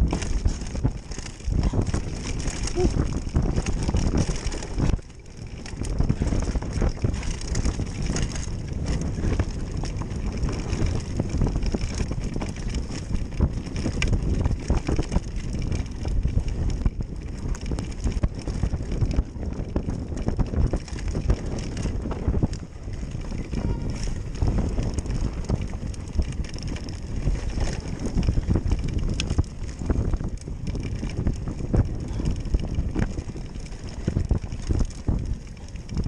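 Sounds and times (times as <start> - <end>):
camera knocks and rattles: 0.0 - 36.0
wind buffeting microphone: 0.0 - 36.0.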